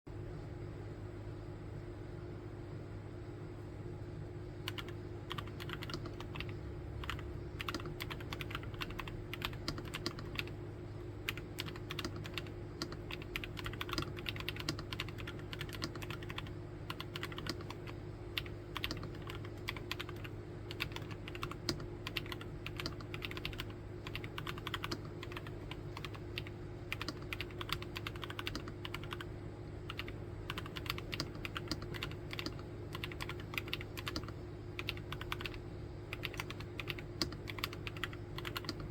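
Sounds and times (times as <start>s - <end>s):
faint low hum: 0.1s - 38.9s
mechanical keyboard typing: 4.7s - 10.6s, 11.3s - 29.3s, 29.9s - 38.9s.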